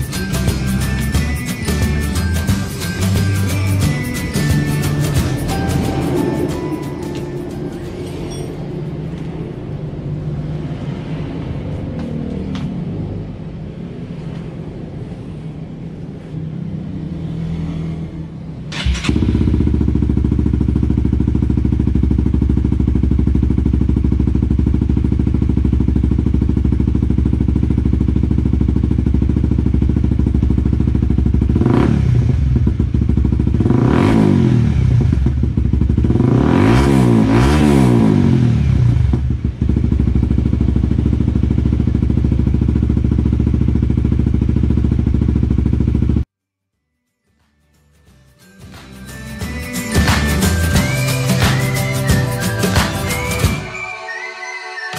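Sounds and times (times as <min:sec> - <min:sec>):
motorcycle engine revving: 0:01.9 - 0:46.3
motorcycle engine idling: 0:18.8 - 0:34.0, 0:34.6 - 0:36.3, 0:38.6 - 0:46.3.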